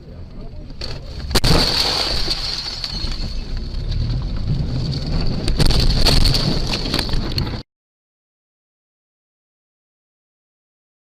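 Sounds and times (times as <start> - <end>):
vehicle driving rumble: 0.0 - 7.6.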